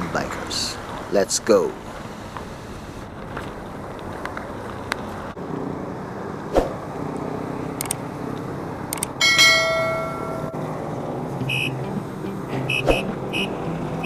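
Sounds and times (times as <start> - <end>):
road and traffic noise: 0.0 - 14.0
light clicks: 7.8 - 9.2
bicycle bell ringing: 9.2 - 10.6.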